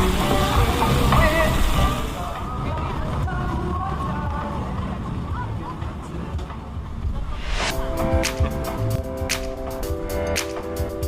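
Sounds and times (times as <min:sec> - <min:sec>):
held music chords: 0:06.9 - 0:11.0
percussion hits: 0:06.9 - 0:11.0.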